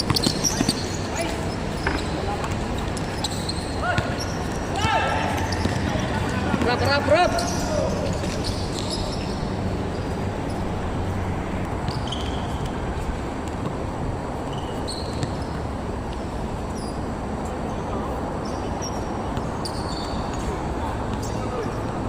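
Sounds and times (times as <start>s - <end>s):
basketball bouncing on court: 0.0s - 0.9s, 3.2s - 7.6s, 15.0s - 15.6s
sneakers squeaking: 0.0s - 22.0s.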